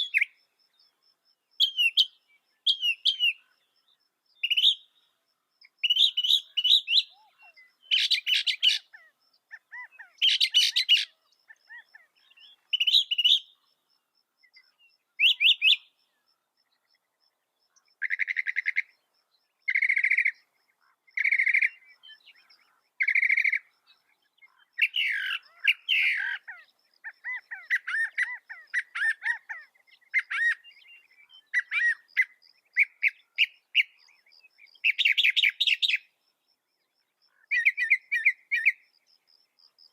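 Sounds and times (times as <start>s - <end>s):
mockingbird singing: 1.6s - 3.7s, 4.4s - 5.0s, 5.6s - 13.7s, 14.6s - 16.0s, 19.7s - 36.1s.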